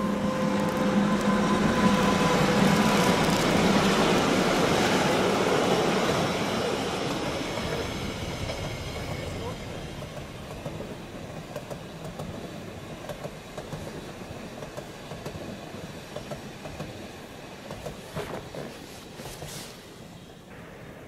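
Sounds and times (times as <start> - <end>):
electric train rumbling past: 0.0 - 21.0.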